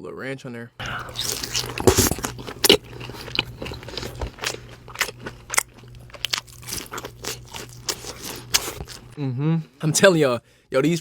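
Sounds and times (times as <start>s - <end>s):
faint steady hum: 0.8s - 9.2s
person chewing crunchy fries: 0.8s - 9.2s.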